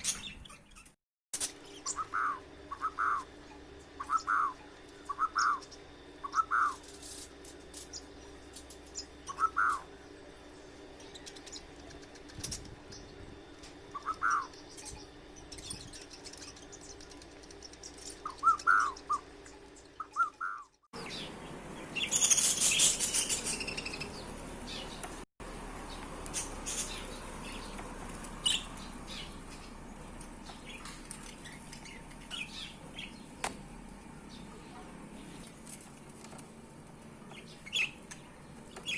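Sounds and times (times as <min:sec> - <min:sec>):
budgerigars chirping: 0:01.8 - 0:06.8, 0:09.0 - 0:09.9, 0:13.9 - 0:25.1, 0:26.4 - 0:27.8, 0:28.4 - 0:29.8, 0:30.4 - 0:33.3, 0:37.3 - 0:38.0
raspy high chirping: 0:13.9 - 0:21.3.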